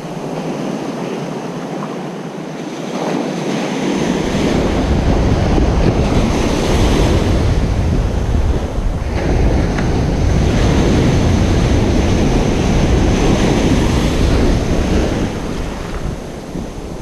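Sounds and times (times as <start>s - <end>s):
waves breaking on beach: 0.0s - 17.0s
wind buffeting microphone: 0.0s - 17.0s.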